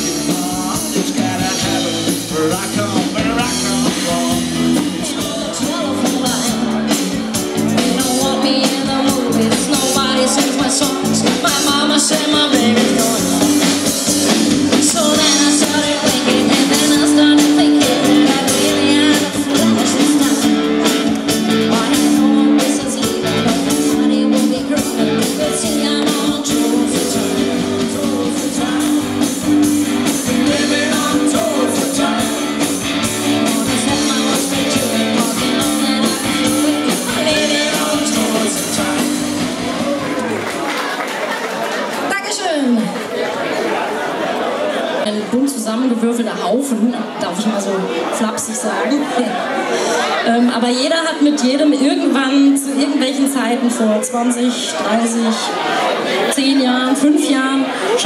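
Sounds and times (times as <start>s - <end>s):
person singing: 0.0s - 40.1s
rock band playing: 0.0s - 42.4s.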